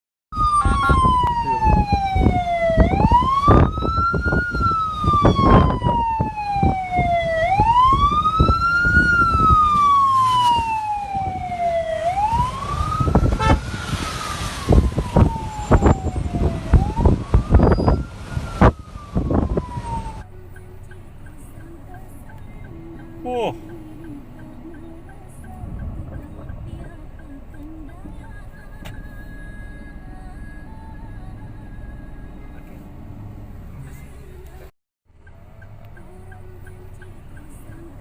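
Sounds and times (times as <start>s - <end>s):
electronic siren wailing: 0.4s - 20.2s.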